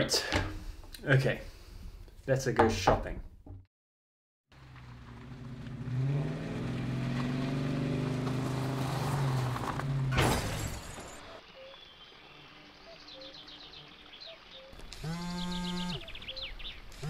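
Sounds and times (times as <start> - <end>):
car engine running: 4.6 - 10.2
birds chirping faintly: 11.2 - 17.0.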